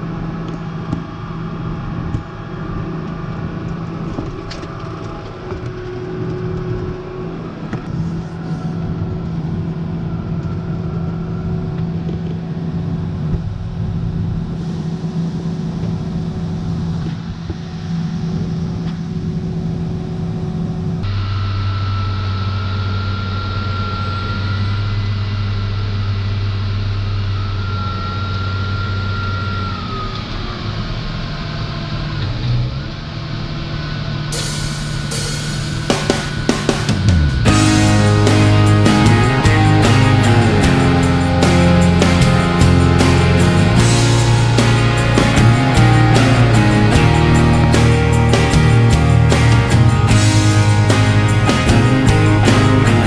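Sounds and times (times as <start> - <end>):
high steady whine: 34.3 - 53.0.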